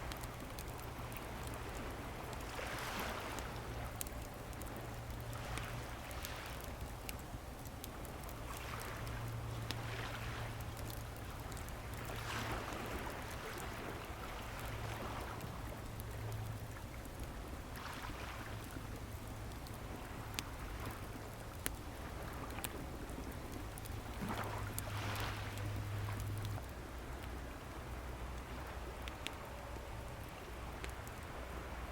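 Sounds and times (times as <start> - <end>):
bonfire crackling: 0.0 - 31.9
low rumble of surf: 0.0 - 31.9
waves washing onto shore: 0.1 - 4.0, 5.3 - 6.8, 8.5 - 16.6, 21.9 - 26.5.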